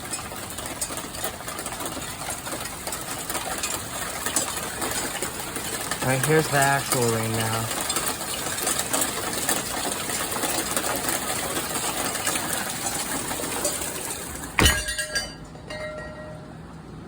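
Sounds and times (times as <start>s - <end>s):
heavy rain pattering: 0.0s - 14.6s
loud thump: 14.6s - 15.0s.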